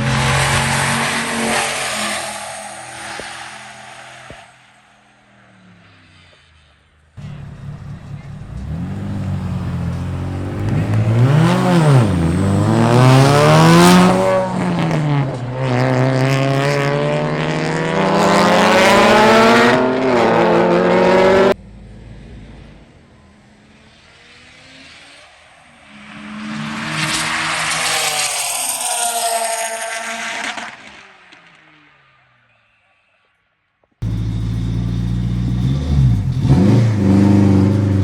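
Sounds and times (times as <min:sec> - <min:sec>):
car engine at full throttle: 0:00.0 - 0:04.8, 0:07.2 - 0:28.8, 0:34.0 - 0:38.0
engine rising: 0:07.2 - 0:17.6, 0:34.0 - 0:38.0.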